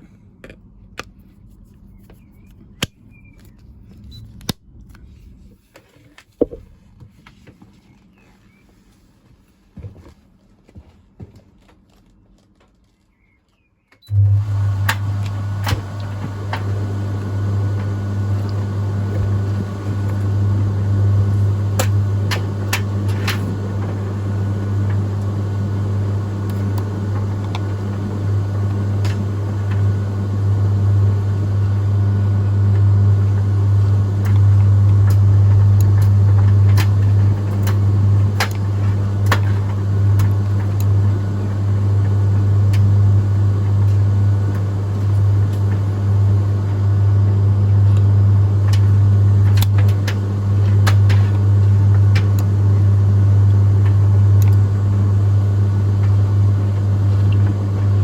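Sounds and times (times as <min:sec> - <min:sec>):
tumble dryer humming: 0:14.1 - 0:58.0.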